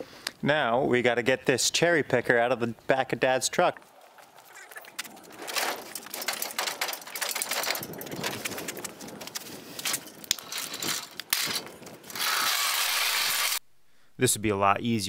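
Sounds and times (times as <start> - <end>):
metal hoist clattering and scraping: 4.6 - 13.6.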